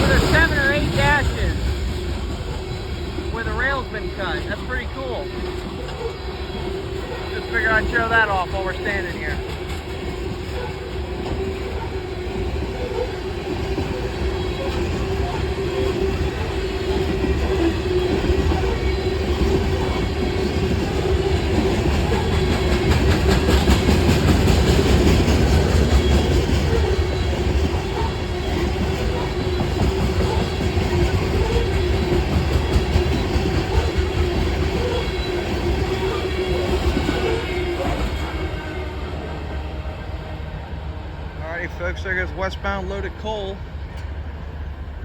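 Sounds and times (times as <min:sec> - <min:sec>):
train wheels clattering on rail: 0:00.0 - 0:39.5.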